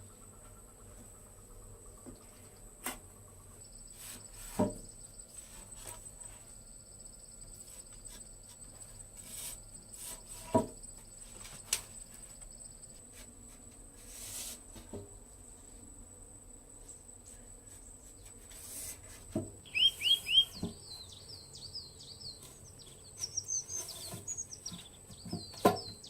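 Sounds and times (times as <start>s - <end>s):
insects buzzing: 0.0s - 26.0s.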